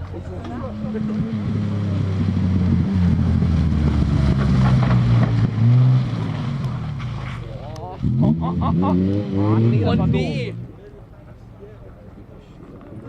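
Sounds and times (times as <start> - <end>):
rally car engine passing: 0.0 - 11.7.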